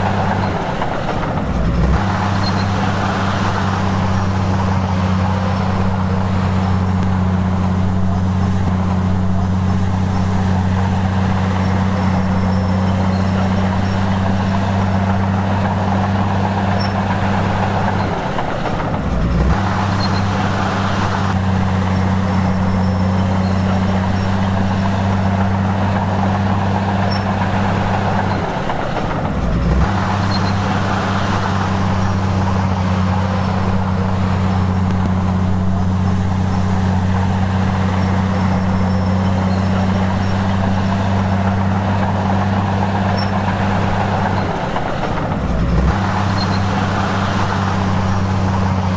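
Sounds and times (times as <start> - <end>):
diesel engine droning: 0.0 - 48.9.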